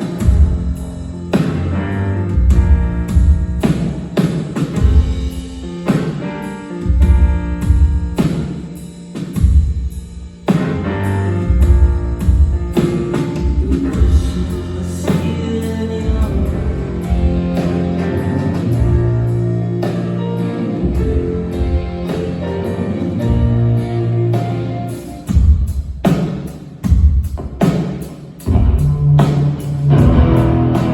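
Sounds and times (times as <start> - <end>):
bass line: 0.0 - 3.7, 10.8 - 12.8, 13.4 - 25.6, 28.5 - 30.9
drum kit beat: 0.0 - 30.9
rock band playing live: 0.0 - 30.9
guitar chords: 10.5 - 25.6, 28.5 - 30.9.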